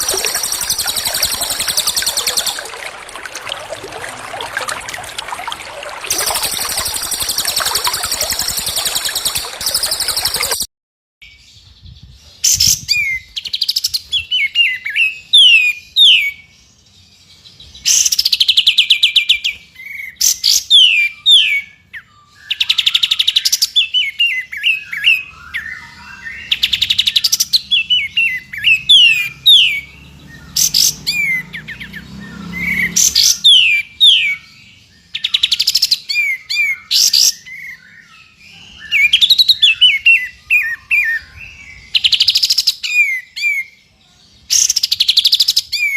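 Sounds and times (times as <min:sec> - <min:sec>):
bird ringing trills: 0:00.0 - 0:10.6
high downward-sweeping whistles: 0:00.0 - 0:10.6.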